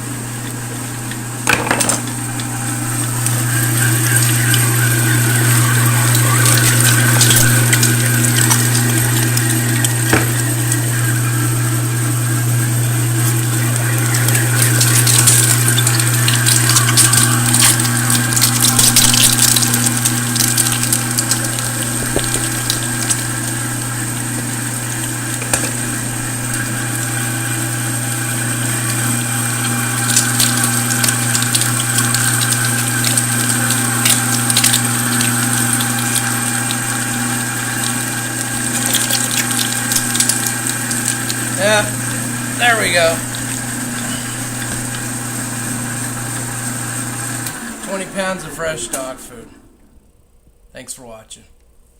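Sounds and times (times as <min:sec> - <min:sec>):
meat crackling in grinder: 0:00.0 - 0:49.2
meat grinder motor hum: 0:00.0 - 0:50.2.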